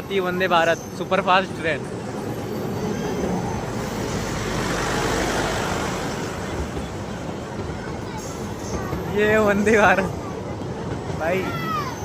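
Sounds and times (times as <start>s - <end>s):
electric train running: 0.0s - 12.0s.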